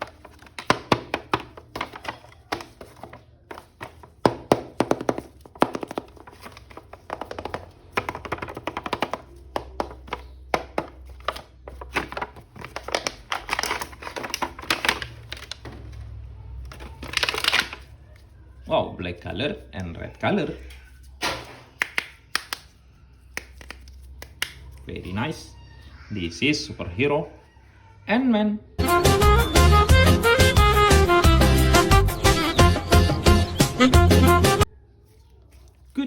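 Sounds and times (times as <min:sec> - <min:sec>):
plastic clicks and taps: 0:00.0 - 0:12.2.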